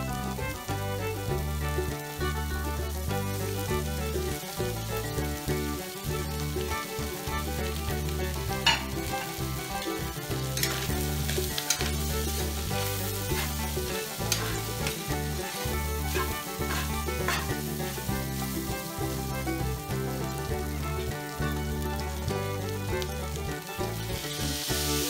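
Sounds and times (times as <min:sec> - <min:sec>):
food sizzling in a wok: 0:00.0 - 0:25.0
metal spatula scraping pan: 0:10.6 - 0:18.0.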